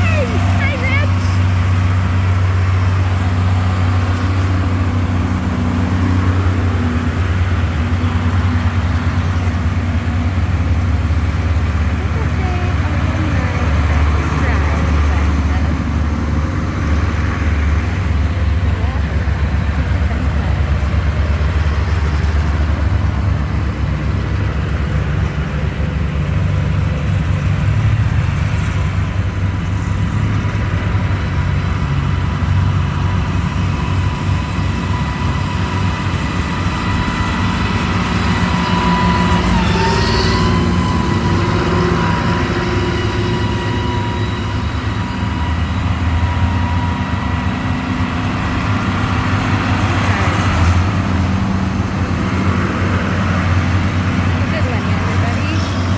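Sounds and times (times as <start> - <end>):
tractor engines rumbling: 0.0 - 55.9
thin whine: 34.4 - 52.2.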